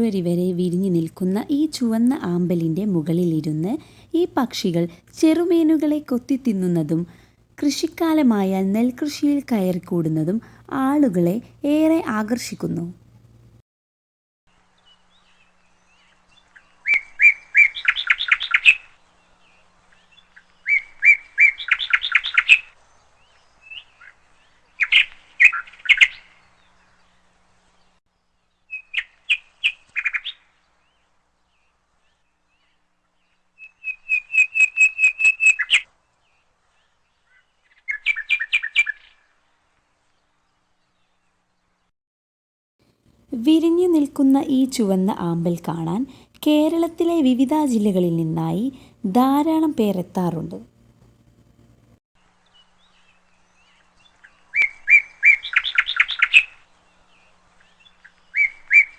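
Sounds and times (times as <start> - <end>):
bird calling rapid notes: 33.8 - 35.8.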